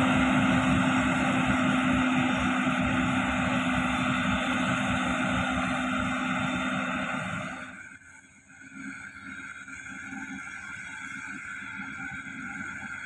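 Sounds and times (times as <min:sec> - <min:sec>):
heavy machine diesel engine: 0:00.0 - 0:08.0.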